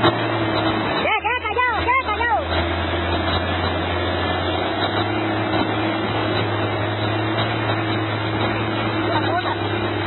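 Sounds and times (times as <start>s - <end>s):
engine running with low hum: 0.0s - 10.0s.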